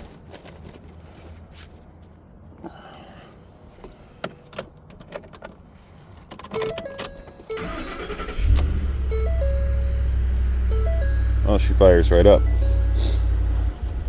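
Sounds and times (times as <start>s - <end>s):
keys jingling: 0.0s - 1.6s
engine cranking and running: 6.6s - 14.0s.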